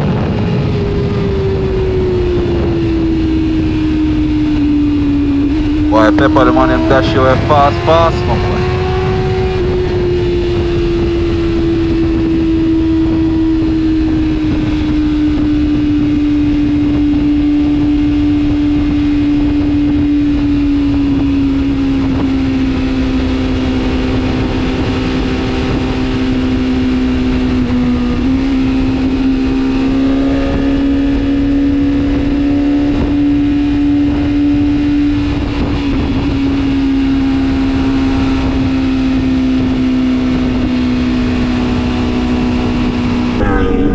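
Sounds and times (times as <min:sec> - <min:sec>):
wind and road rush: 0:00.0 - 0:22.3
vehicle engine at high revs: 0:05.6 - 0:09.8.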